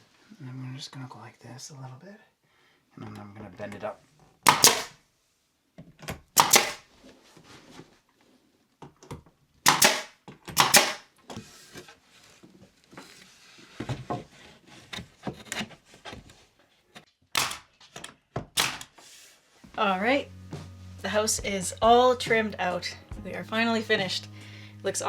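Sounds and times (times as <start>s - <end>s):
nail gun firing into wood: 4.4s - 5.0s, 6.3s - 6.8s, 9.6s - 11.1s, 17.4s - 17.7s, 18.5s - 18.9s.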